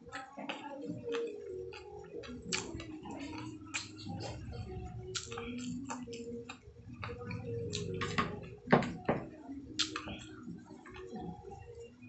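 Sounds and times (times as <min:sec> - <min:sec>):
wet mouth clicks and lip smacks: 0:01.1 - 0:04.2, 0:05.1 - 0:08.0, 0:09.8 - 0:10.1
person chewing: 0:01.1 - 0:08.6, 0:09.8 - 0:11.2.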